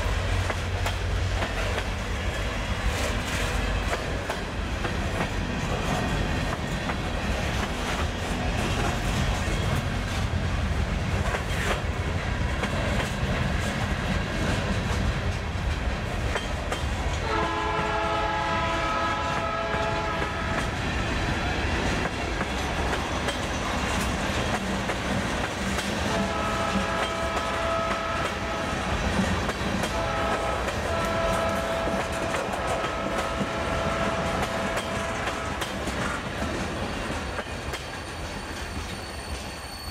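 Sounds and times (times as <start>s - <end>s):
freight train rumbling past: 0.0s - 39.9s
train air horn blasts: 17.2s - 20.8s, 26.0s - 29.0s, 29.8s - 35.7s.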